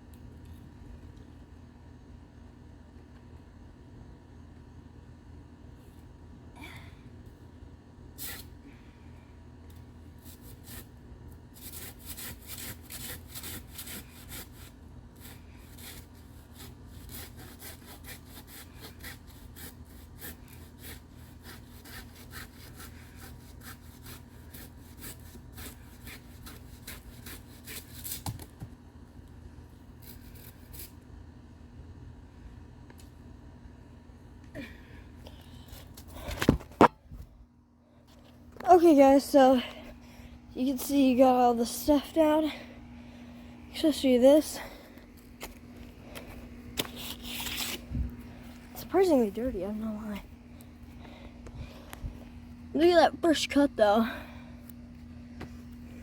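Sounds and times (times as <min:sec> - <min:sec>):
hand saw cutting plant stalks: 0:11.5 - 0:28.4, 0:45.4 - 0:50.1.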